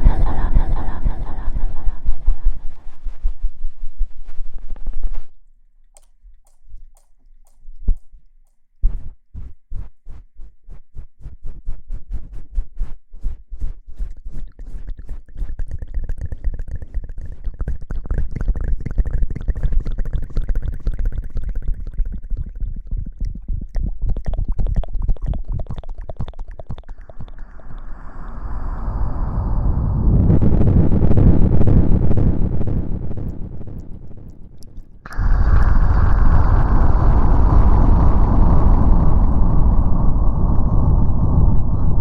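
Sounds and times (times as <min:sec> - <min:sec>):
heavy low rumble: 0:00.0 - 0:03.8, 0:27.0 - 0:42.0
crackling rustling at microphone: 0:01.8 - 0:21.6, 0:30.4 - 0:40.2.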